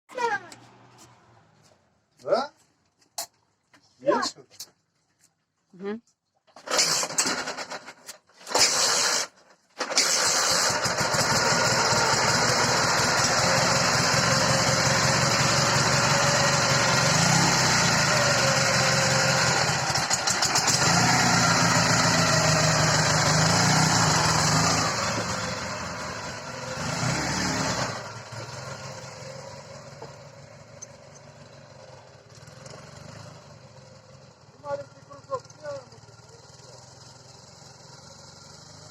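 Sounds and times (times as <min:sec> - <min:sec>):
motorcycle engine cranking: 0:06.5 - 0:12.2, 0:19.3 - 0:25.8
motorcycle engine running: 0:10.8 - 0:38.9.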